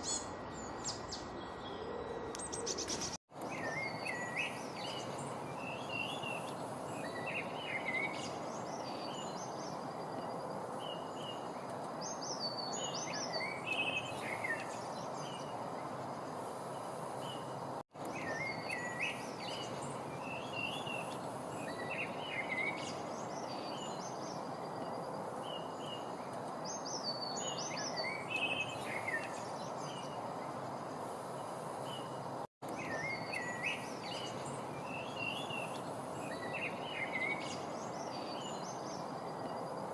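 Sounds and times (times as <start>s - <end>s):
songbirds chirping: 0.0s - 39.9s
steady rushing noise: 13.2s - 17.8s.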